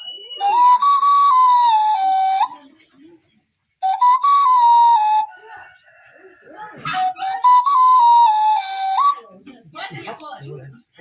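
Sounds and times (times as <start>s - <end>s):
flute-like whistle: 0.0s - 2.6s, 3.8s - 5.5s, 7.0s - 9.3s.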